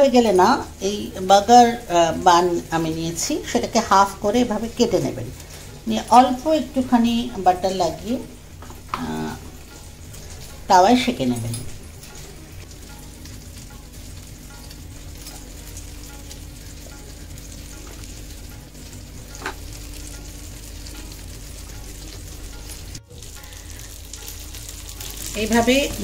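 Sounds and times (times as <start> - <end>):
bread sizzling on a griddle: 11.7 - 26.0.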